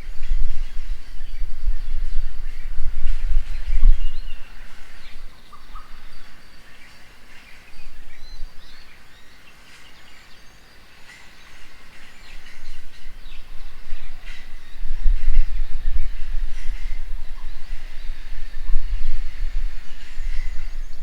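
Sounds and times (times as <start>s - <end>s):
low rumble: 0.0s - 6.6s, 11.6s - 21.0s
birds chirping: 0.0s - 21.0s.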